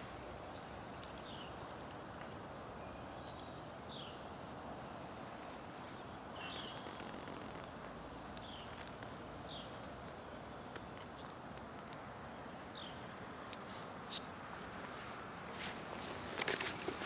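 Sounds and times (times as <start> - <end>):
steady outdoor hiss: 0.0 - 17.0
birds chirping: 0.5 - 4.6, 5.3 - 11.4, 12.0 - 13.4.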